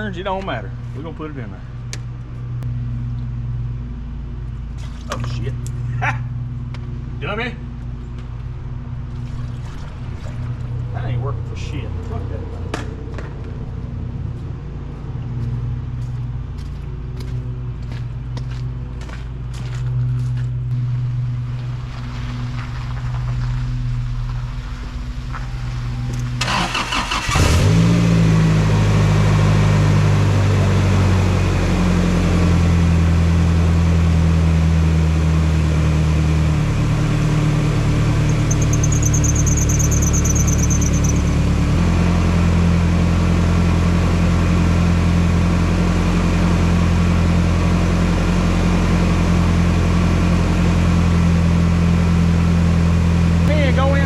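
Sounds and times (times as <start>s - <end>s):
pickup engine idling: 20.8s - 33.4s, 36.4s - 47.8s
engine cranking: 26.1s - 27.8s, 38.2s - 41.6s.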